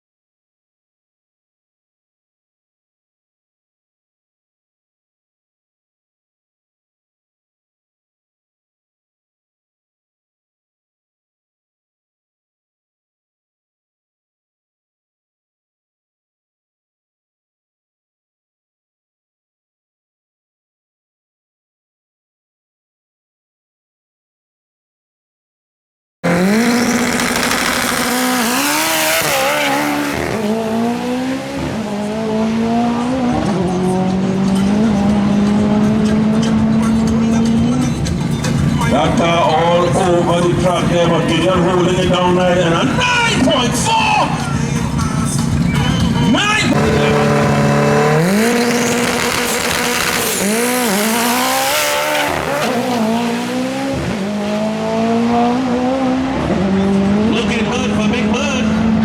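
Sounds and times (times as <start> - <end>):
race car engine at high revs: 26.2 - 59.0
tyre squeal: 45.6 - 51.0.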